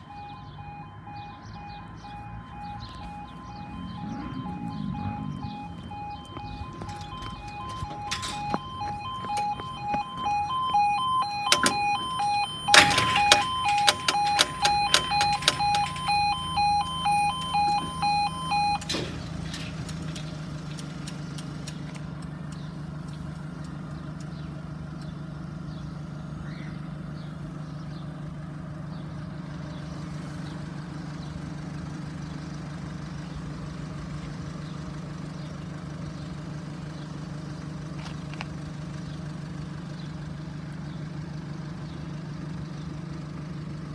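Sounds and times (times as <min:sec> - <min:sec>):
engine idling: 0:01.6 - 0:43.9
level crossing alarm two-tone pulse: 0:02.6 - 0:19.1.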